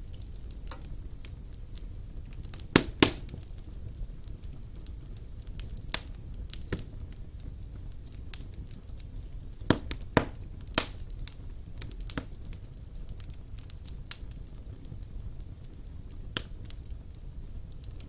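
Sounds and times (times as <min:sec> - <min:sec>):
low fire rumble: 0:00.0 - 0:18.0
wood fire crackling and popping: 0:00.0 - 0:18.0.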